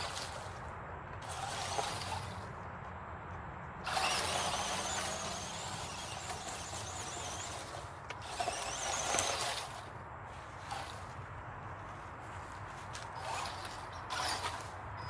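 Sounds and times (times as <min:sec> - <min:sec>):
small electric motor whining: 0:01.2 - 0:02.4, 0:03.9 - 0:11.0, 0:13.2 - 0:14.7.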